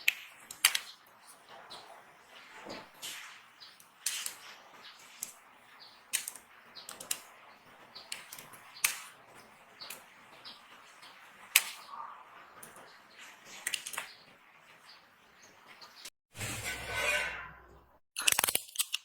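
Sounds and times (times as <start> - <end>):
sharp snaps: 0.0 - 1.0, 6.1 - 7.3, 8.1 - 9.2, 11.5 - 11.9
soap cracking and crumbling: 18.2 - 19.0.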